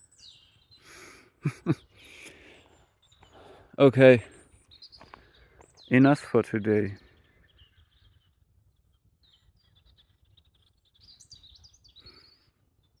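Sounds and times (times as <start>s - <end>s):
high bird chirps: 1.6s - 13.0s.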